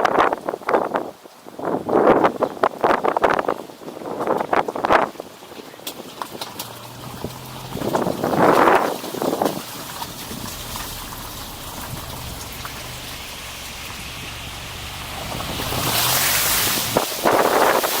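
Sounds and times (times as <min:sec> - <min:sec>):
low engine hum: 0:06.2 - 0:17.9
tyres hissing on wet road: 0:06.4 - 0:18.0.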